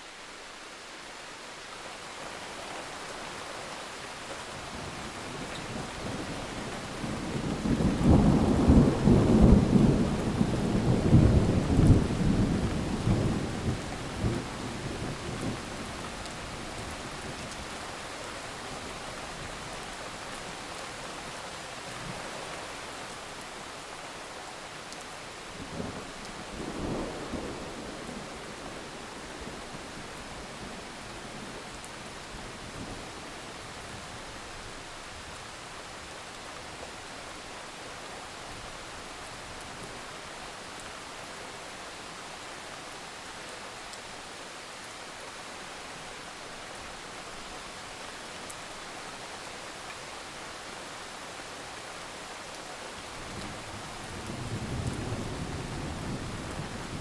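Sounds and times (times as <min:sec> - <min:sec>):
low thunder rumbles: 0:53.3 - 0:57.0.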